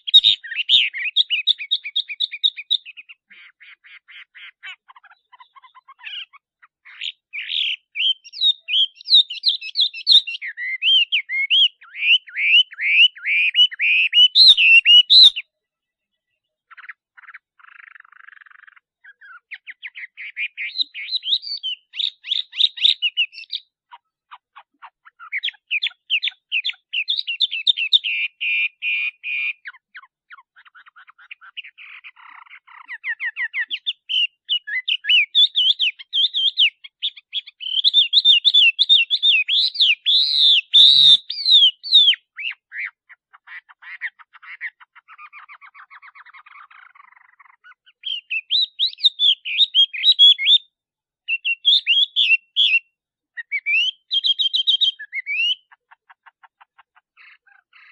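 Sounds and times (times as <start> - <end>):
bird singing whistled trills: 0.0 - 15.6, 16.5 - 23.8, 24.8 - 43.0, 43.9 - 56.4
quiet bird warbling: 0.0 - 33.6.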